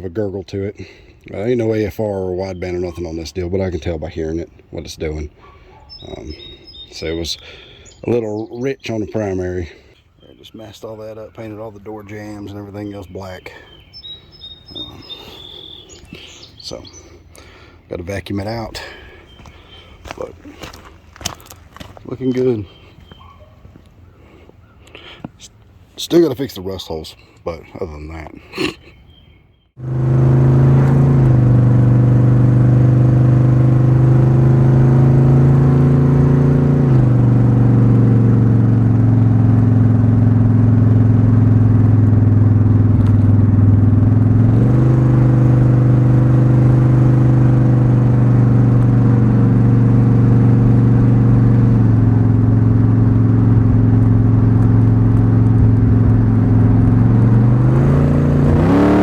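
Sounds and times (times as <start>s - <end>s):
car engine running: 29.8s - 59.0s.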